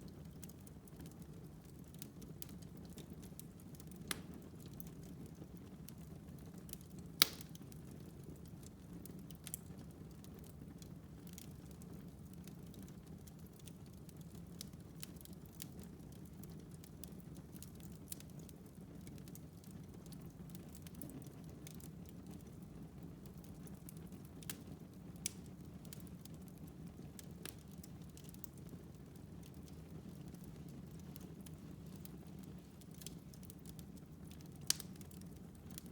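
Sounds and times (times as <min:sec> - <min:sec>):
burning logs crackling and popping: 0:00.0 - 0:35.9
rumble of flames: 0:00.0 - 0:35.9.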